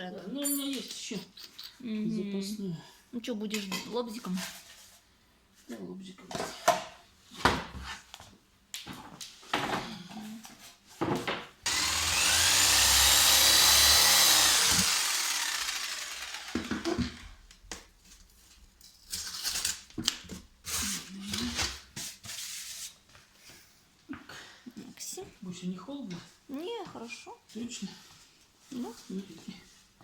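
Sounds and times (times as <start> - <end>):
electric jigsaw cutting board: 11.7 - 17.4.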